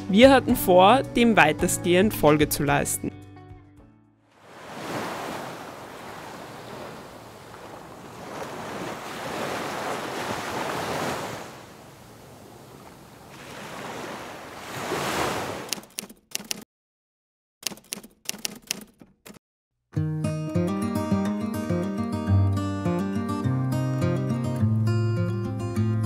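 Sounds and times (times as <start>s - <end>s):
sea waves washing in: 4.4s - 15.7s.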